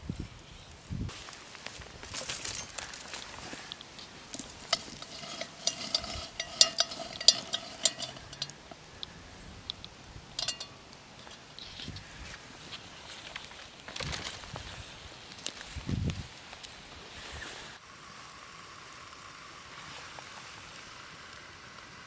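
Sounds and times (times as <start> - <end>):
metal utensil scraping a pot: 4.3 - 8.6, 10.4 - 10.8
utensil clinking against pot: 4.4 - 8.6, 10.4 - 10.8
meat frying in oil: 17.8 - 22.0.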